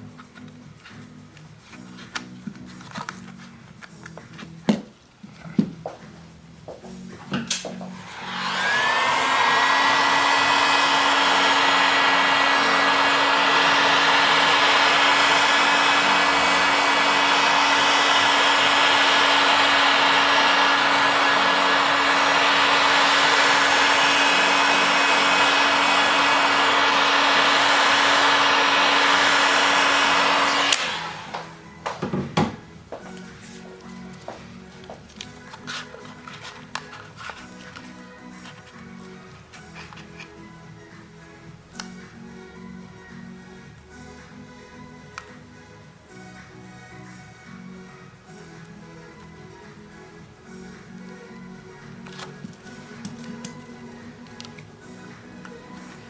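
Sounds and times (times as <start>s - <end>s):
heat gun blowing air: 8.0s - 31.6s.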